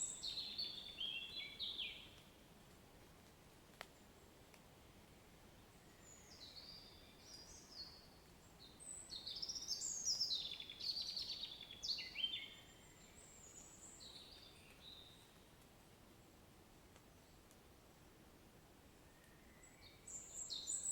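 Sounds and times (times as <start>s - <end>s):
songbird chirping and trilling: 0.0s - 2.2s, 5.8s - 15.5s, 19.1s - 20.9s
faint steady background hiss: 0.0s - 20.9s.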